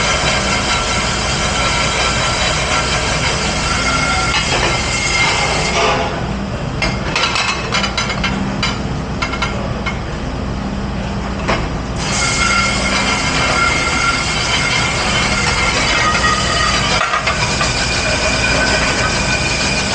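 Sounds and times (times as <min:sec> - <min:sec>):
dish machine rushing and whining: 0:00.0 - 0:19.9
dishes and utensils clinking: 0:06.8 - 0:10.0.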